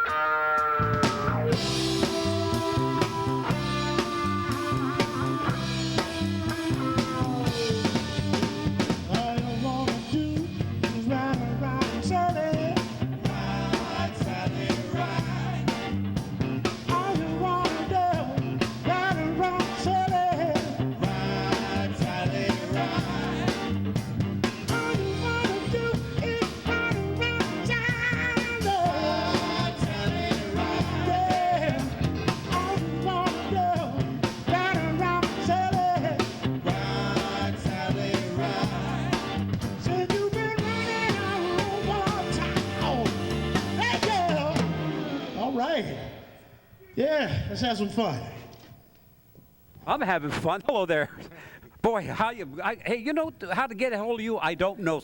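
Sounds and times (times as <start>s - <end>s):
drum kit: 0.0s - 45.6s
band playing a song: 0.0s - 46.0s
person singing: 0.8s - 15.9s, 16.9s - 23.8s, 24.7s - 45.4s.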